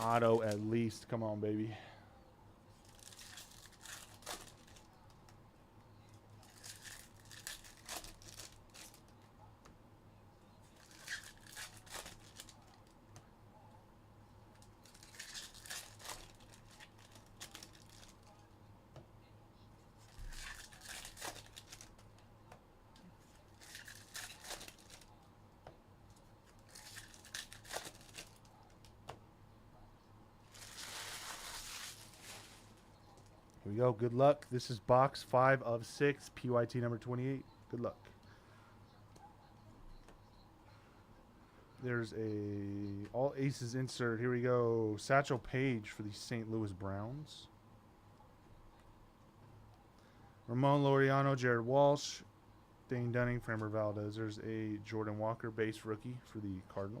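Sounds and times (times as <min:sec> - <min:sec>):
card pack wrappers tearing: 0:02.8 - 0:04.9, 0:06.4 - 0:09.0, 0:10.8 - 0:12.8, 0:14.8 - 0:18.3, 0:20.1 - 0:22.0, 0:23.5 - 0:25.1, 0:26.5 - 0:28.5, 0:30.5 - 0:32.8.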